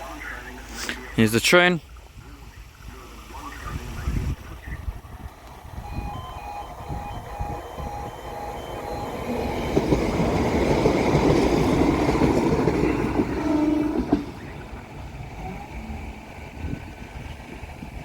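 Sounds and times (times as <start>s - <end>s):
train passing: 2.7s - 18.0s
crossing alarm tones: 4.3s - 16.8s.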